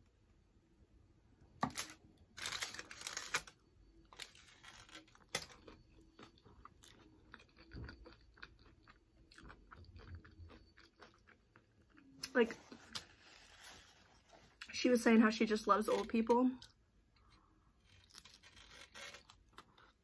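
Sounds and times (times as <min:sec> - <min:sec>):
crunching tortilla chip: 0:01.7 - 0:03.6, 0:04.2 - 0:12.0, 0:17.8 - 0:20.0.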